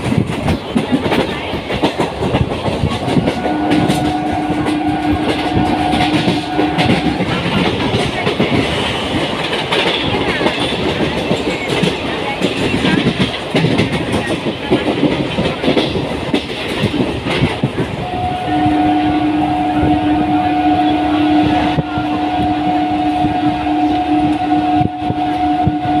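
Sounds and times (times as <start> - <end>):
train rattling on tracks: 0.0 - 26.0
two-tone train horn: 3.0 - 7.7, 18.0 - 26.0.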